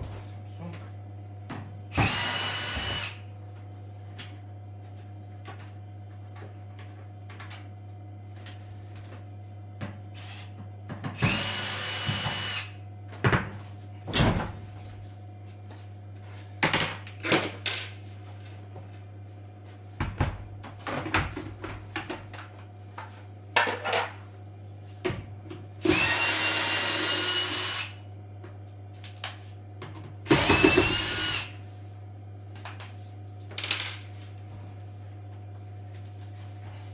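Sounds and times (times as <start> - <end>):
cordless drill whining: 2.0 - 3.2, 11.2 - 12.7, 25.8 - 28.0, 30.3 - 31.6
steady low hum: 27.7 - 36.9
sharp knocks and clatter of parts: 33.5 - 34.1.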